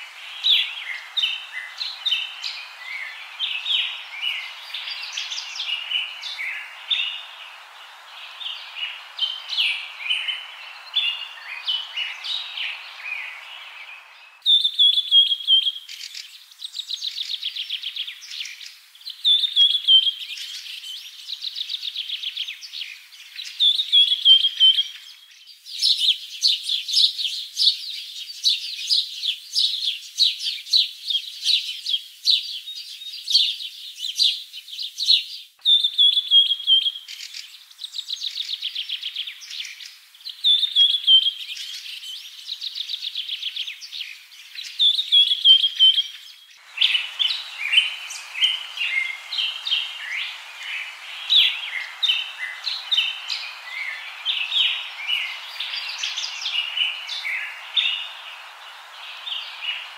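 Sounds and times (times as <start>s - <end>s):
small birds chirping: 0.0s - 59.9s
steady background hiss: 0.0s - 59.9s
bird trills and whistles: 46.8s - 59.9s.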